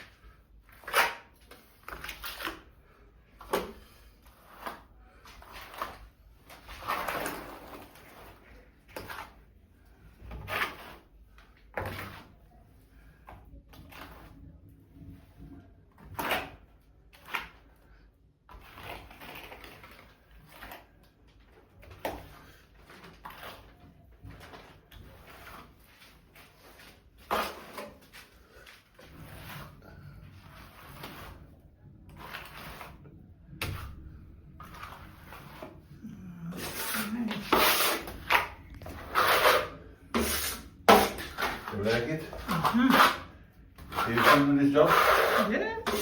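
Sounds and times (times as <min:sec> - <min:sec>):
rough scraping: 0:22.3 - 0:34.0, 0:34.6 - 0:46.0
hand tool scraping and knocking: 0:36.5 - 0:46.0.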